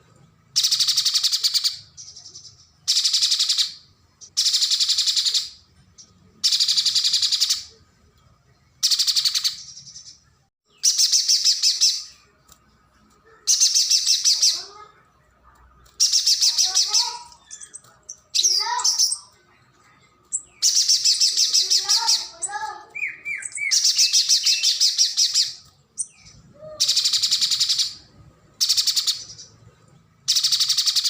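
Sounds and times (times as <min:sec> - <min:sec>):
bird harsh chattering calls: 0:16.0 - 0:19.3, 0:20.3 - 0:29.5.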